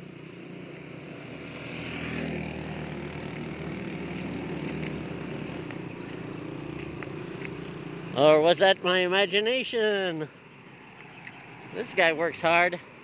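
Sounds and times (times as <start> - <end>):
vehicle engine running: 0.0 - 9.4
street noise: 0.0 - 13.0.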